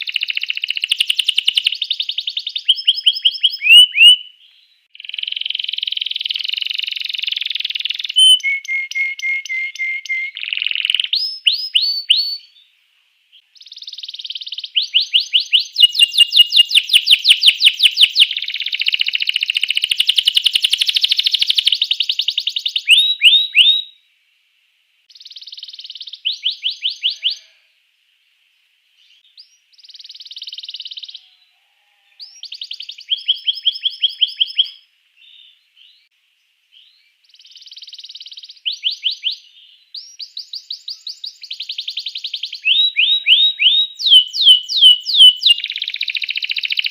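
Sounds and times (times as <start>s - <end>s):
canary singing trills: 0.0s - 12.7s, 13.4s - 24.0s, 25.1s - 27.7s, 29.0s - 36.1s, 36.8s - 46.9s.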